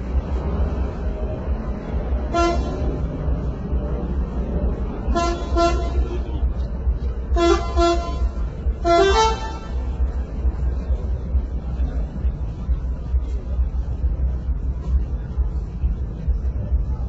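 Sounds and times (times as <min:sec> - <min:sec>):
low rumble: 0:00.0 - 0:17.0
truck multi-tone horn toots: 0:02.2 - 0:03.1, 0:05.0 - 0:06.5, 0:07.2 - 0:10.0.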